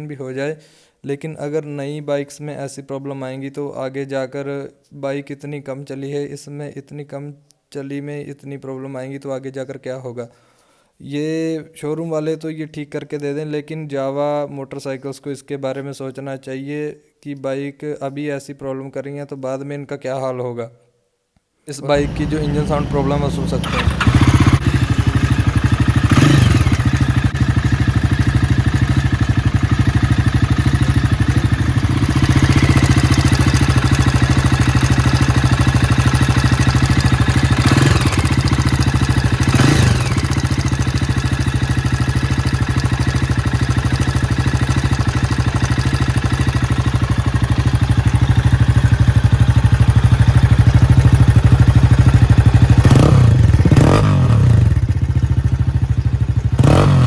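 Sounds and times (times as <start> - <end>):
motorcycle engine idling and revving: 22.0 - 57.0.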